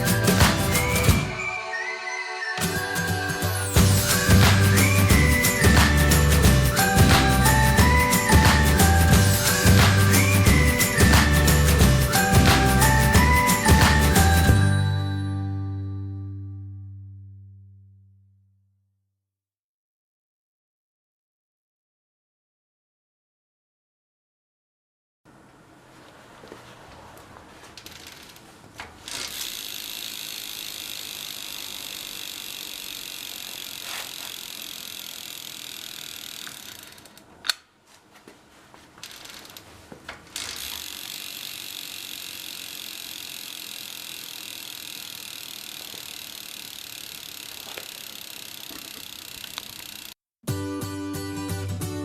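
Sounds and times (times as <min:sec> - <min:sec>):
bicycle wheel spinning whir: 0:27.4 - 0:37.4, 0:39.0 - 0:39.7, 0:40.3 - 0:50.2.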